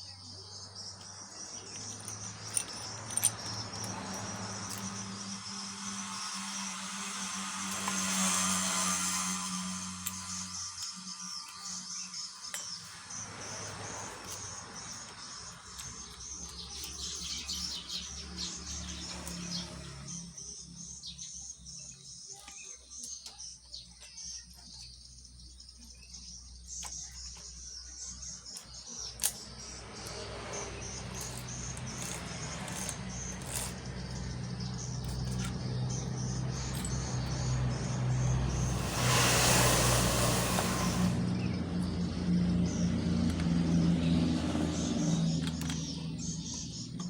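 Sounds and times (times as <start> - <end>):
birds chirping: 0.0 - 47.0.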